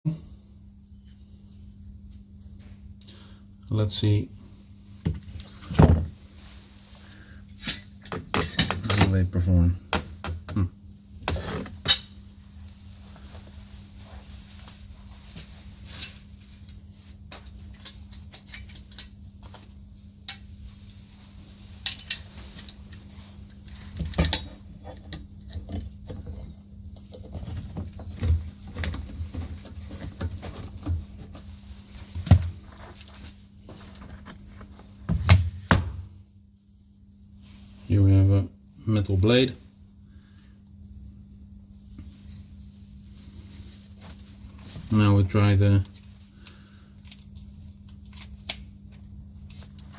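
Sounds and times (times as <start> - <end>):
steady low hum: 0.1 - 49.9
tools and metal parts clicking: 17.7 - 19.2.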